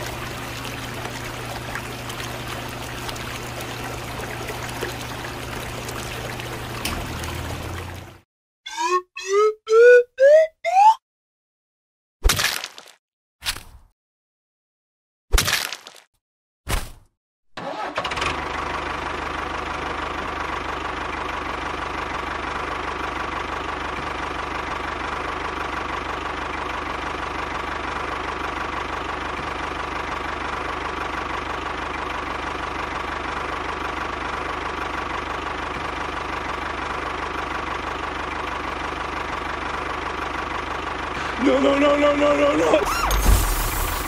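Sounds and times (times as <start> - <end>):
tractor engine running: 17.6 - 44.0.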